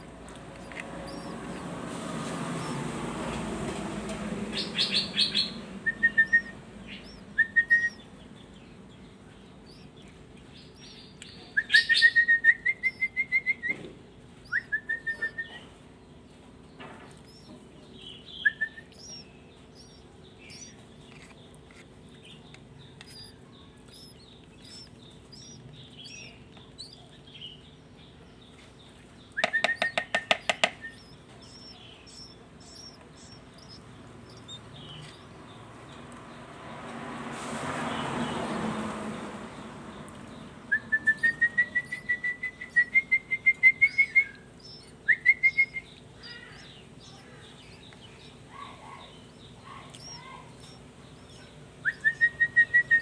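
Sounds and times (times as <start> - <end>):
songbirds chirping and whistling: 0.0 - 53.0
faint high chirps: 4.5 - 8.2, 17.1 - 28.6, 29.4 - 35.9, 40.1 - 53.0.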